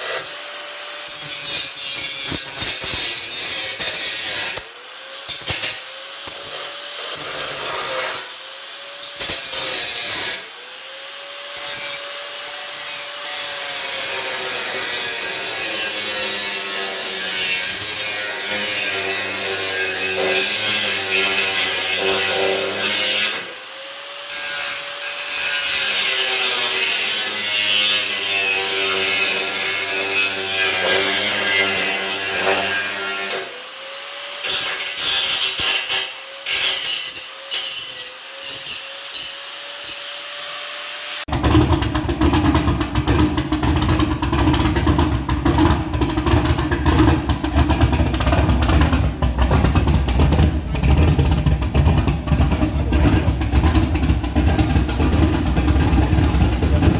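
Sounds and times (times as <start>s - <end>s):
power tool motor whining: 0.0s - 16.2s.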